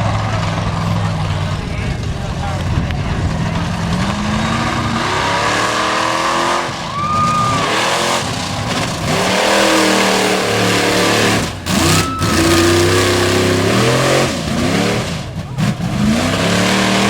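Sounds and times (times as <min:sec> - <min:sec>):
engine revving hard: 0:00.0 - 0:17.0.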